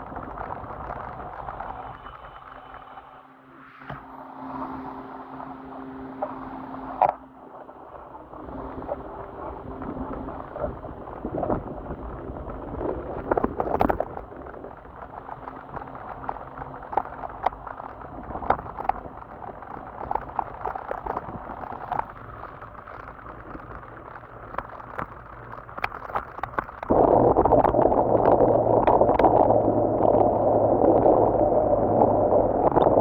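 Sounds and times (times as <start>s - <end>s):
steady rushing noise: 0.0s - 33.0s
water crackling and popping: 0.0s - 33.0s
faint low motor hum: 1.7s - 13.7s.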